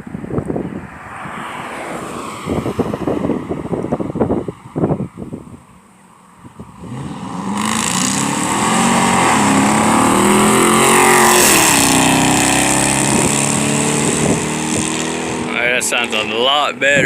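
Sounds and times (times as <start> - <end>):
car exhaust accelerating past: 6.6 - 16.4.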